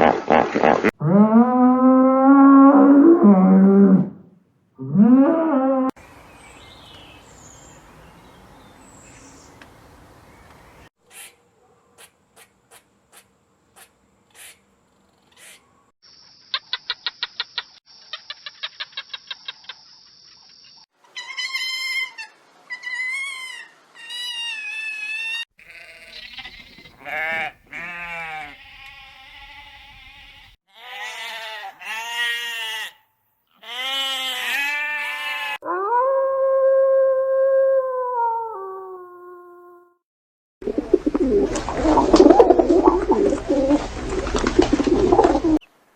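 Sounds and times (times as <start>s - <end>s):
animal bleating calls: 22.8s - 35.6s.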